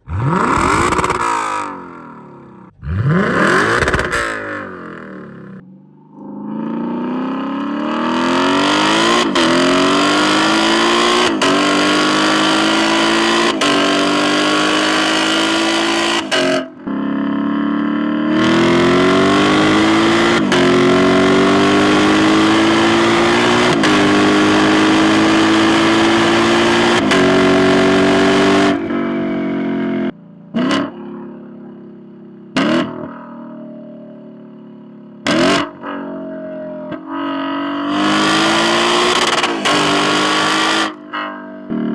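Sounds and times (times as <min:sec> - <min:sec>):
engine throttle blips: 0:00.0 - 0:16.9
car engine accelerating: 0:00.0 - 0:41.9.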